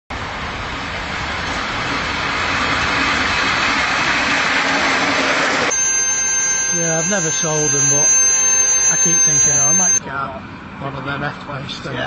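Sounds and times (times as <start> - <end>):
steam locomotive hissing and rumbling: 0.2 - 5.7.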